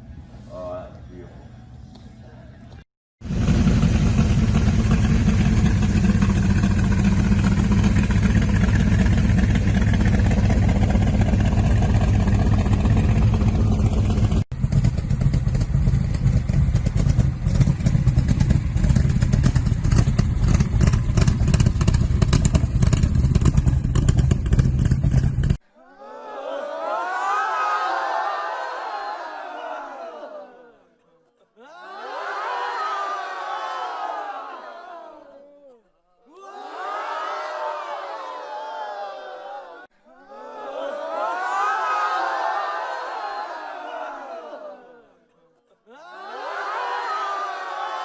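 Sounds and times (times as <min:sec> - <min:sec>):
car engine running loudly: 0:03.2 - 0:25.6.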